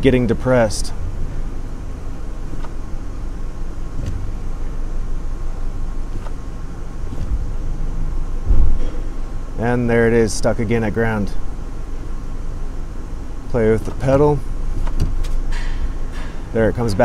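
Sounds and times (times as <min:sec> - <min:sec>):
car engine idling: 0:00.0 - 0:17.0
brake pedal thump: 0:02.5 - 0:02.8, 0:03.9 - 0:04.4, 0:07.0 - 0:07.6, 0:08.4 - 0:09.1, 0:13.9 - 0:15.8.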